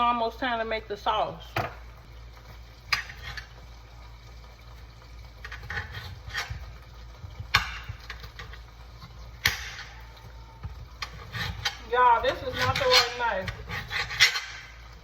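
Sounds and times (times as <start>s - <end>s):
low steady hum: 0.0s - 15.0s
kitchen utensils clattering: 10.8s - 14.9s.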